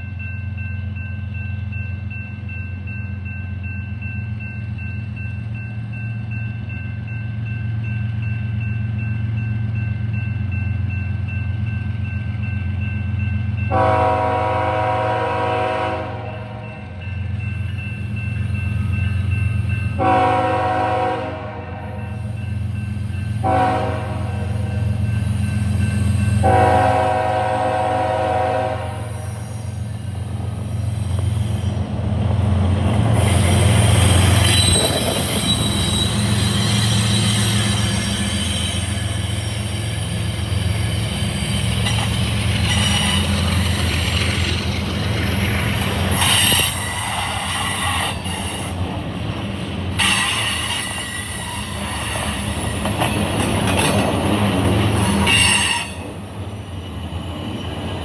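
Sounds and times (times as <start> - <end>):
train air horn blasts: 13.7 - 16.8, 20.0 - 22.3, 23.4 - 25.0, 26.4 - 29.5, 55.1 - 56.2
wheels squealing on rails: 13.7 - 21.1, 21.8 - 58.0.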